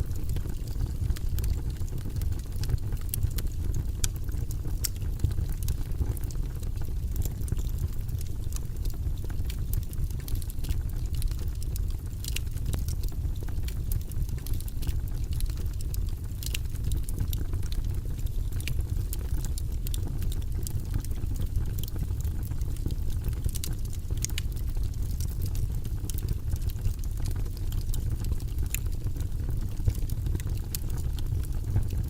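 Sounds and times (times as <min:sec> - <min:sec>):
fire crackling and popping: 0:00.0 - 0:32.0
low rumble of flames: 0:00.0 - 0:32.0.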